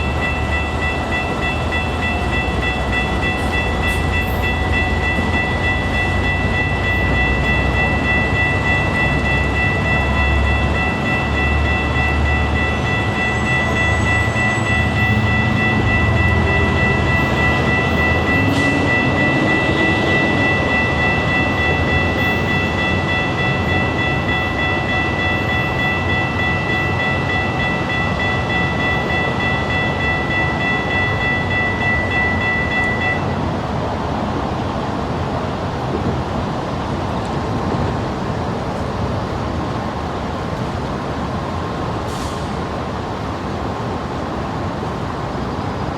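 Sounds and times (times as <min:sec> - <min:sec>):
high-pitched ringing tone: 0:00.0 - 0:33.4
train rumbling: 0:00.0 - 0:45.9.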